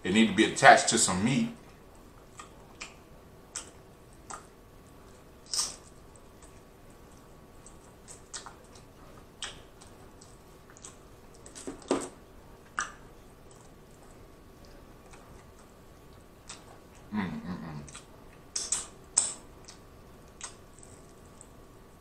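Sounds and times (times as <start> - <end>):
wet chewing smacks and clicks: 2.0 - 4.5, 5.5 - 11.6, 12.6 - 17.1, 17.9 - 21.6.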